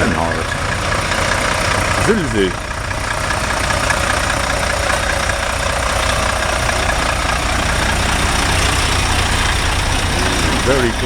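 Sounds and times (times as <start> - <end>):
diesel truck engines rumbling: 0.0 - 11.0.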